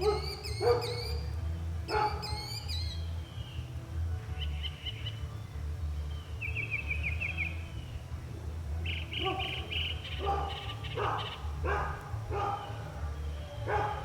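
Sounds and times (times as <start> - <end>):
mockingbird singing: 0.0 - 8.1, 8.8 - 14.0
low steady rumble: 0.0 - 14.0.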